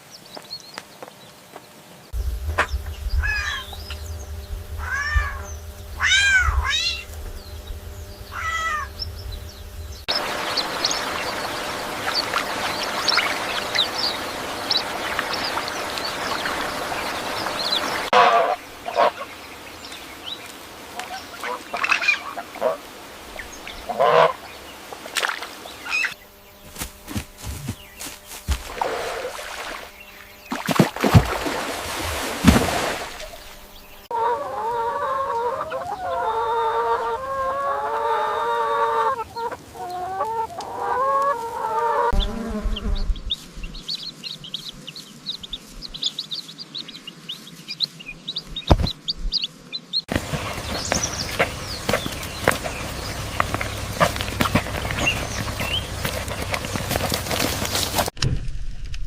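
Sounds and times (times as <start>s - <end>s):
steady hiss: 1.8s - 30.5s
animal calls rising and falling: 2.6s - 4.0s, 4.7s - 7.2s, 8.2s - 9.1s
patter of short high calls: 2.6s - 9.2s.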